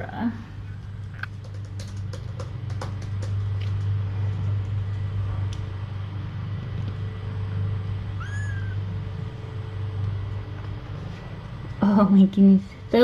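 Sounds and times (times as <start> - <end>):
steady low hum: 0.0 - 13.0
kitten mewing: 8.2 - 8.9.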